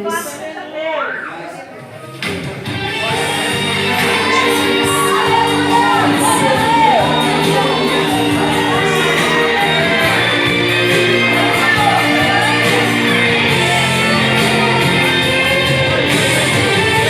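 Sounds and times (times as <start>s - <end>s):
band playing gospel music: 1.1s - 17.0s
person singing and calling out: 4.4s - 10.2s.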